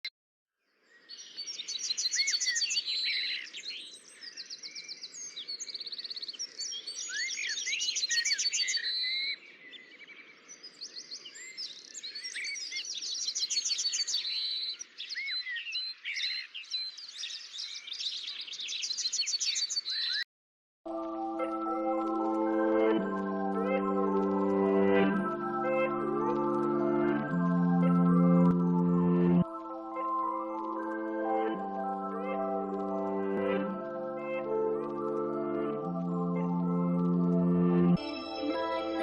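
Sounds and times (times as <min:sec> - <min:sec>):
songbirds singing: 0:00.7 - 0:20.2.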